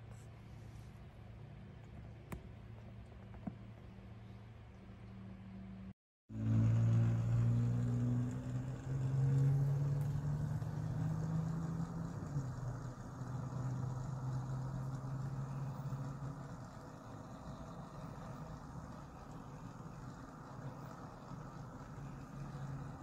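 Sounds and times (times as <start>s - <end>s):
motor humming: 6.3s - 23.0s.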